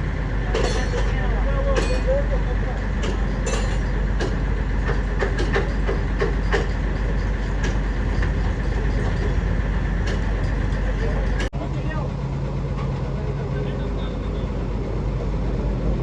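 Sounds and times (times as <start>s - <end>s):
heavy engine rumbling: 0.0s - 16.0s
metallic clicks and knocks: 3.0s - 11.5s.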